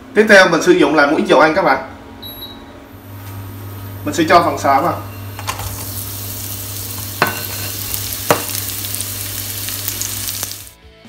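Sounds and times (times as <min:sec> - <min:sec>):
frying hiss in oil: 0:04.6 - 0:10.8.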